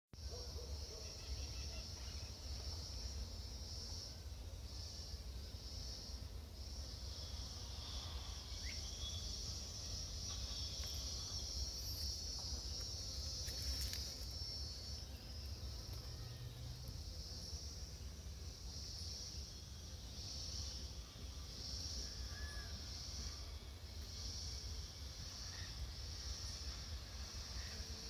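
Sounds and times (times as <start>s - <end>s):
insects chirring: 0.2s - 28.0s.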